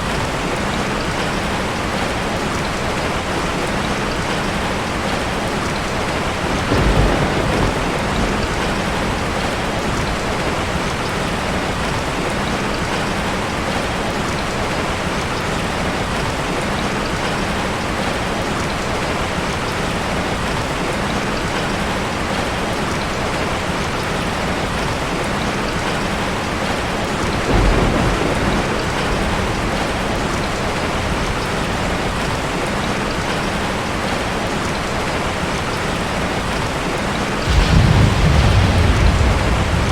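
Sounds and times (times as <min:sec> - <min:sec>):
heavy rain falling: 0:00.0 - 0:39.9
low rolls of thunder: 0:06.3 - 0:12.0, 0:27.2 - 0:32.5, 0:37.4 - 0:39.9.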